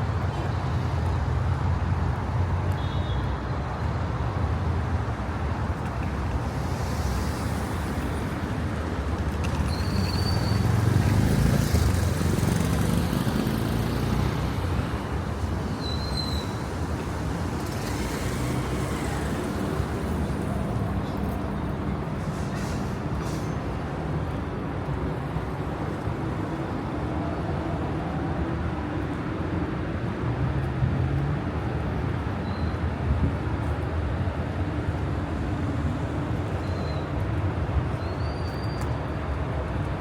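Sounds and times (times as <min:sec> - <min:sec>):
rumble of road traffic: 0:00.0 - 0:40.0
brief high squeaks: 0:09.6 - 0:10.7, 0:15.8 - 0:16.6, 0:38.0 - 0:39.0.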